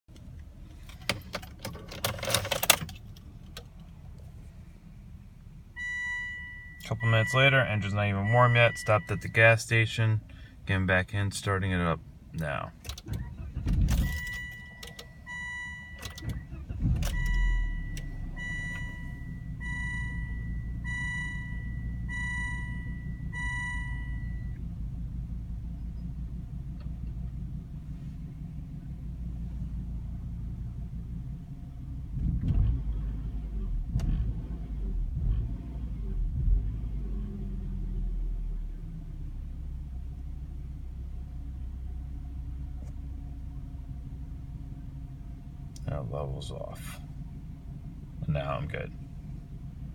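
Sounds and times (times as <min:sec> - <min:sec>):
car engine starting and idling rough: 0:00.0 - 0:49.9
car warning chime beeping: 0:05.7 - 0:09.7, 0:13.9 - 0:24.7.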